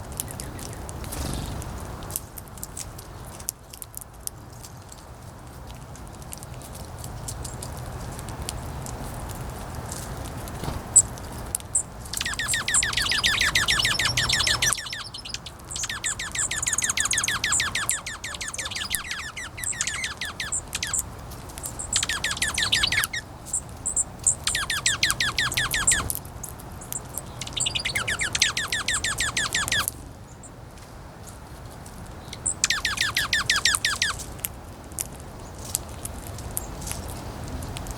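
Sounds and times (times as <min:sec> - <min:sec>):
songbird trilling: 0:12.1 - 0:26.2, 0:26.8 - 0:30.5, 0:32.2 - 0:34.2.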